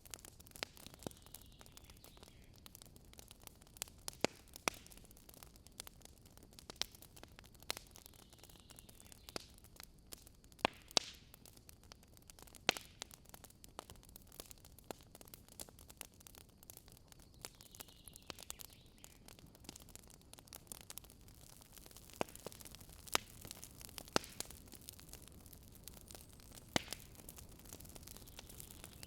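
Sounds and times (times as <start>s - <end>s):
burning wood popping: 0.0s - 29.0s
wood campfire crackling: 0.0s - 29.0s.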